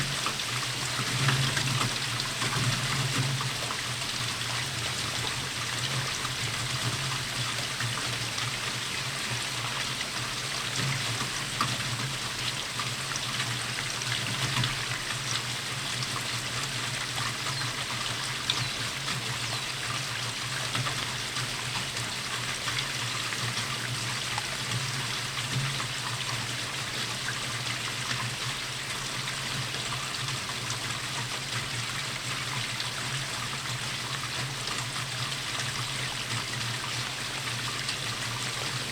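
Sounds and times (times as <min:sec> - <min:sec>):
steady rainfall hiss: 0:00.0 - 0:38.9.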